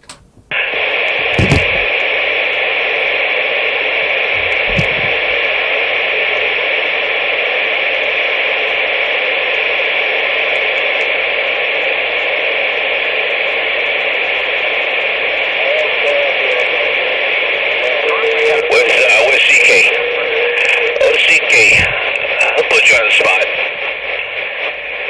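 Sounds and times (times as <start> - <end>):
radio static hiss: 0.0 - 25.0
short low thumps: 1.4 - 1.9.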